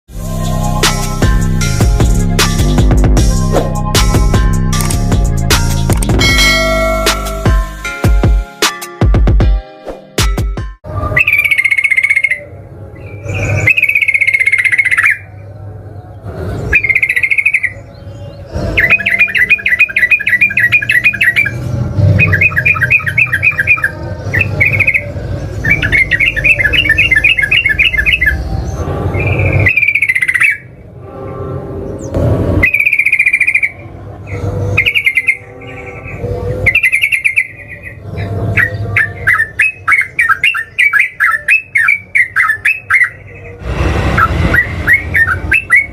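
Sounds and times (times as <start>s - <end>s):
bulbul singing: 10.9s - 15.5s, 16.6s - 30.8s, 32.0s - 43.6s.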